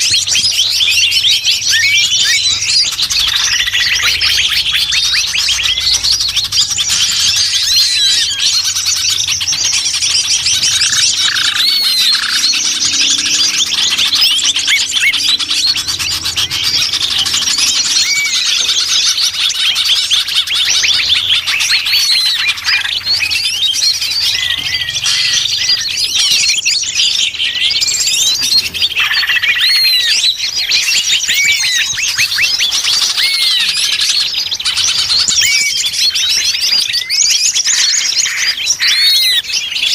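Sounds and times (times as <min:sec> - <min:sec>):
chorus of songbirds chirping: 0:00.0 - 0:39.9.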